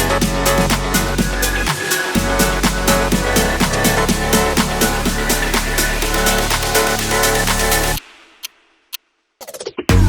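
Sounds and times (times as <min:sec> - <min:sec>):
electronic dance music: 0:00.0 - 0:08.4.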